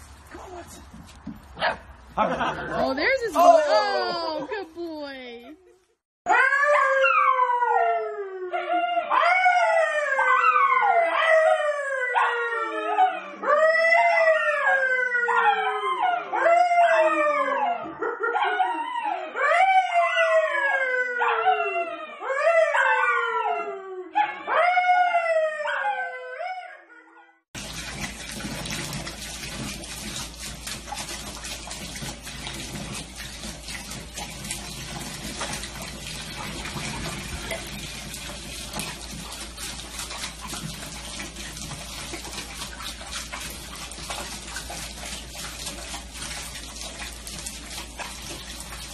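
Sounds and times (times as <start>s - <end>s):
running water rushing: 0.0s - 5.3s, 27.6s - 48.9s
dog howling: 6.3s - 27.2s.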